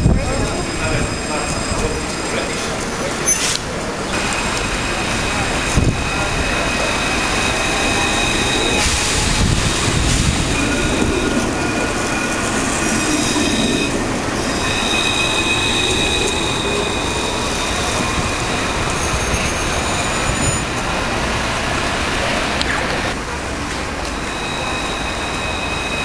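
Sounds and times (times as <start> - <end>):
high-pitched wheel squealing: 0.0 - 21.2, 23.9 - 26.0
tram rolling on rails: 0.0 - 26.0.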